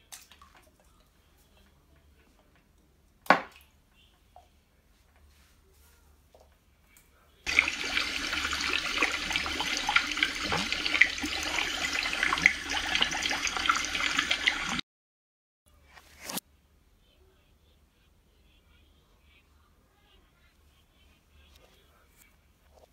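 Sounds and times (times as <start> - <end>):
aquarium water bubbling: 7.5 - 14.8.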